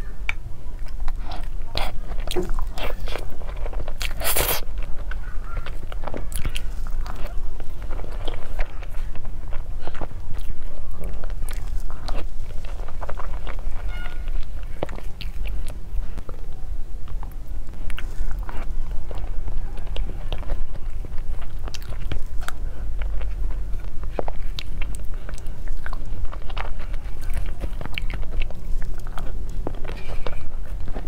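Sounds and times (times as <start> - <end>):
steady low rumble: 0.0 - 31.0
wet chewing mouth clicks: 0.2 - 16.4, 17.0 - 31.0.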